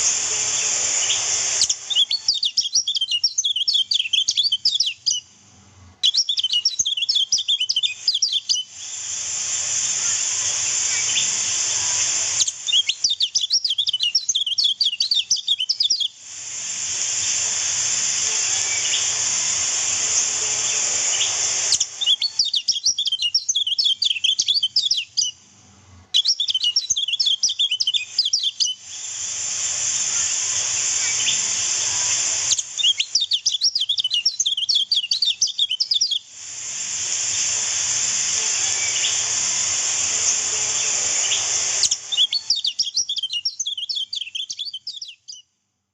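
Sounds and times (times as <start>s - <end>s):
rushing water hiss: 0.0s - 2.4s, 8.1s - 15.1s, 16.0s - 22.5s, 26.9s - 35.6s, 36.2s - 42.7s
birds twittering chirps: 0.0s - 5.3s, 6.0s - 8.7s, 10.8s - 16.2s, 18.5s - 19.2s, 20.0s - 25.4s, 26.2s - 28.8s, 30.7s - 36.2s, 38.6s - 39.6s, 40.2s - 45.4s.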